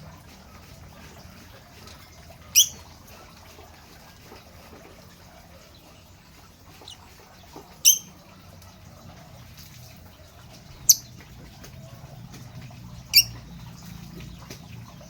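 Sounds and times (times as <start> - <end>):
lovebird shrill calls: 2.5 - 2.8, 7.8 - 8.1.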